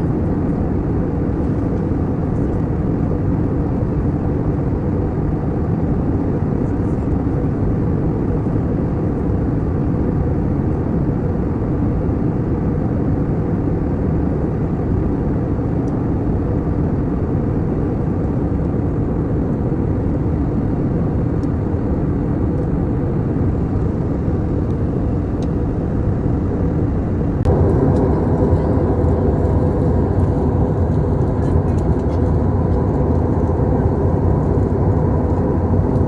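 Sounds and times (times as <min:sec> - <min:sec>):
airliner cabin engine rumble: 0:00.0 - 0:36.0.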